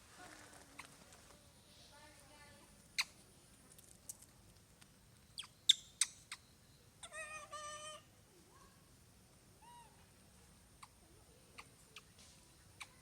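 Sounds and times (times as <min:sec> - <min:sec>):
baby monkey squeaking: 0:05.4 - 0:08.0.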